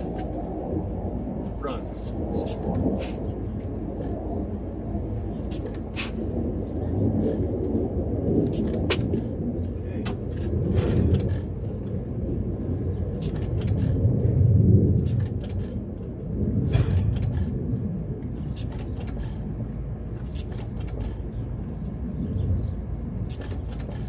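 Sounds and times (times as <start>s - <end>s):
engine low rumble: 0.0s - 24.0s
gas engine firing pops: 8.4s - 9.3s.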